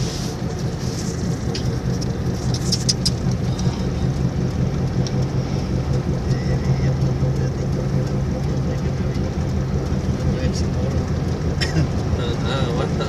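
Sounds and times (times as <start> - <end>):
vehicle engine and road noise: 0.0 - 13.0
light sharp ticks: 1.3 - 5.3.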